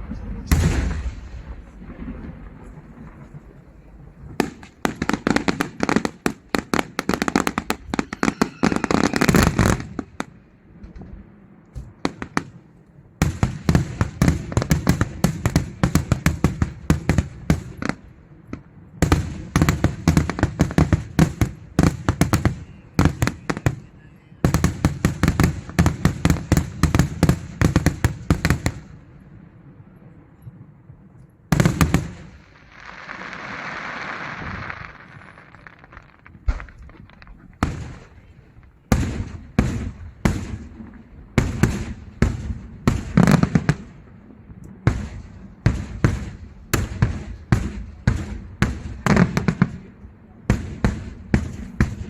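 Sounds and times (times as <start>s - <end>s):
fireworks bangs: 0.0s - 52.0s.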